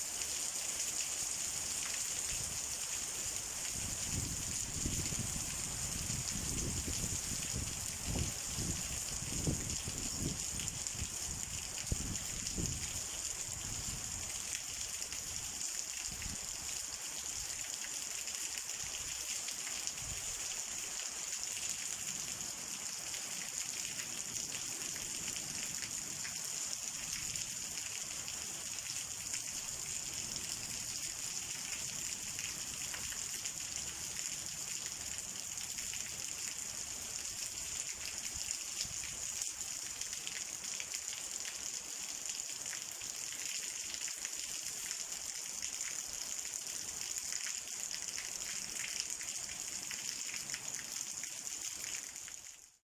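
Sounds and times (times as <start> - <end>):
rain falling steadily: 0.0 - 52.8.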